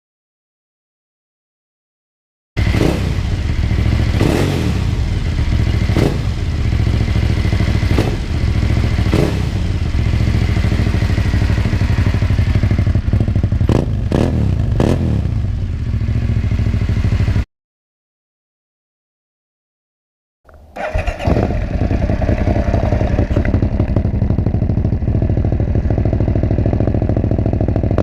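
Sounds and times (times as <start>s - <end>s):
motorcycle engine running: 2.6s - 17.5s, 20.6s - 28.0s.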